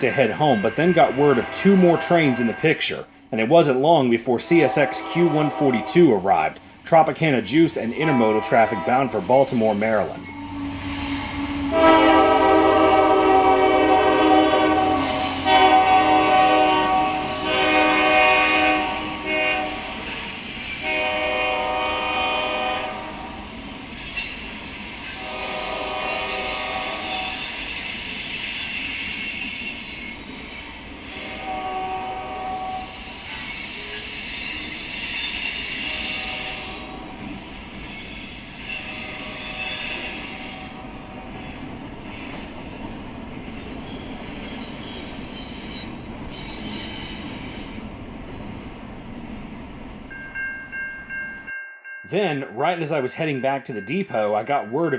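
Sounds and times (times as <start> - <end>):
locomotive horn blasts: 0.0 - 3.0, 4.4 - 6.4, 7.8 - 9.3, 10.0 - 20.1, 20.8 - 23.4, 25.2 - 27.4, 31.2 - 32.9, 35.7 - 37.3, 38.8 - 41.4
wheels squealing on rail: 0.0 - 3.3, 7.4 - 50.4
rumble of passing train cars: 0.0 - 54.9.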